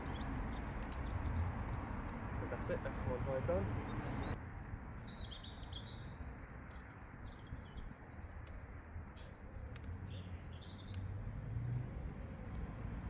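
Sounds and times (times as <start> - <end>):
small birds chirping: 3.8 - 13.0.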